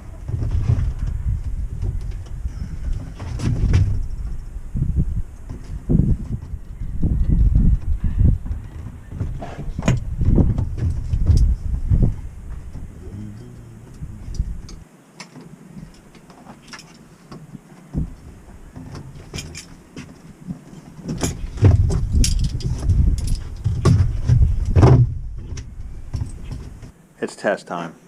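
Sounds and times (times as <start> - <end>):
heavy low thumps and knocks: 0.0 - 14.8, 21.3 - 26.9.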